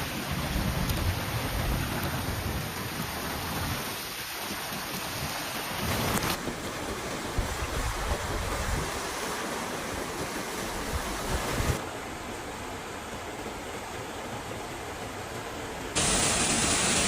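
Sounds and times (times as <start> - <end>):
gusting wind: 0.0 - 12.8
rushing water: 0.0 - 17.0
steady hiss: 16.0 - 17.0.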